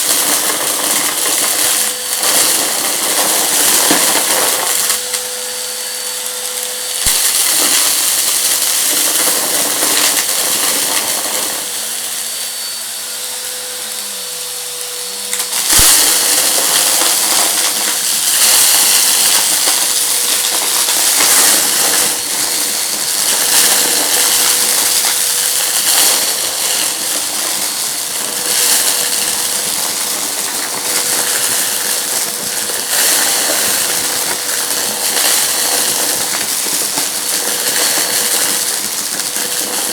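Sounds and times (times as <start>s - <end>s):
vacuum cleaner sucking debris: 0.0s - 39.9s.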